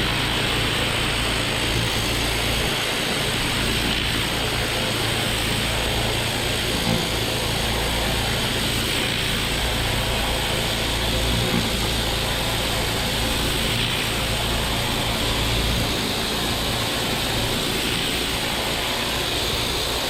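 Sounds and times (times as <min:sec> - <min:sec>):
high-pressure water spray hiss: 0:00.0 - 0:20.0
pressure washer engine drone: 0:00.0 - 0:20.0.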